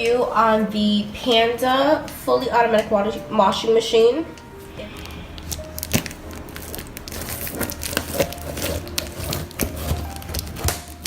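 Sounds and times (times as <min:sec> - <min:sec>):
packaging crinkling and rustling: 0:04.9 - 0:11.0.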